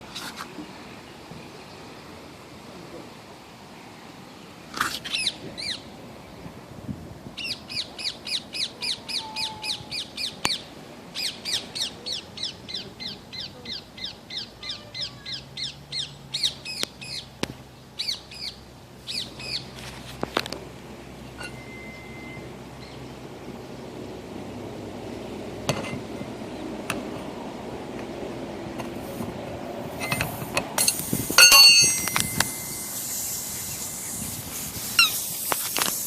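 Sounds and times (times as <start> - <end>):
bird chirping: 18.0 - 19.7.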